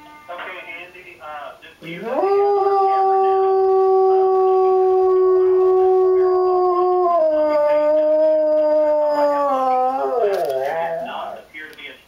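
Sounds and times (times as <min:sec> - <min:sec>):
dog howling: 0:01.8 - 0:11.4.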